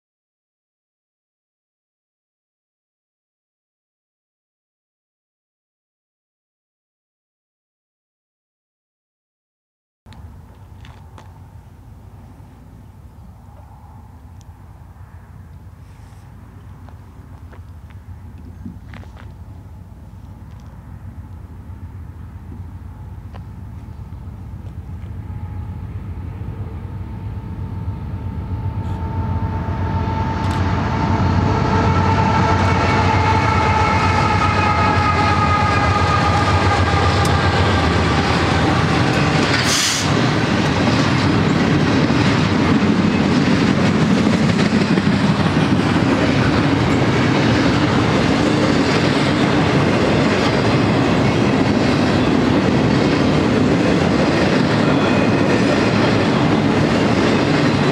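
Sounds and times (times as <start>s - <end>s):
freight cars rumbling and clacking: 10.1s - 25.3s, 34.7s - 57.9s
diesel locomotives: 10.1s - 57.9s.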